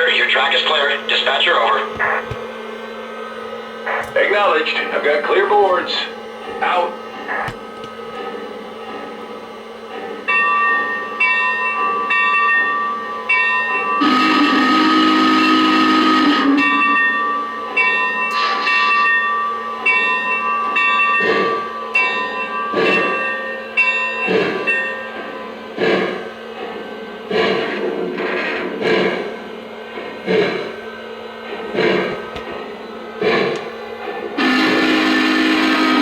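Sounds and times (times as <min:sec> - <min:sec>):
steam chuffs: 0:00.0 - 0:02.6, 0:03.5 - 0:23.3, 0:24.1 - 0:36.0
locomotive bell ringing: 0:00.0 - 0:27.3, 0:33.7 - 0:36.0
steam whistle blast: 0:13.8 - 0:17.7, 0:18.3 - 0:19.2, 0:34.4 - 0:36.0
steam hiss: 0:18.2 - 0:19.2.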